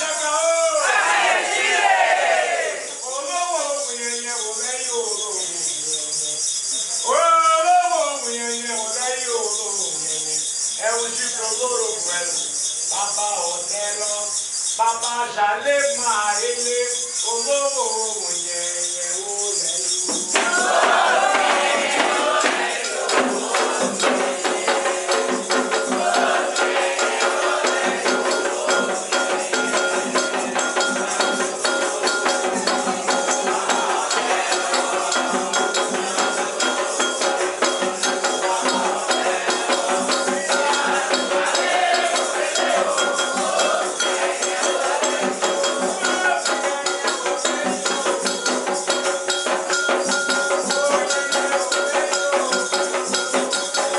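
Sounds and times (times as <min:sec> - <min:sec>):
fast hand percussion: 0:00.0 - 0:53.9
shaker rattling: 0:00.0 - 0:53.9
group of voices singing: 0:00.6 - 0:03.1, 0:20.1 - 0:48.8.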